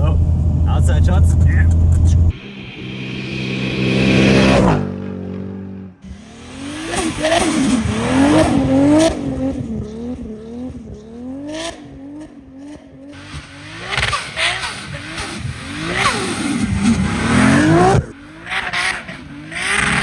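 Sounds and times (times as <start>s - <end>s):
exhaust cracks: 0.0s - 12.3s
car engine revving: 0.0s - 20.0s.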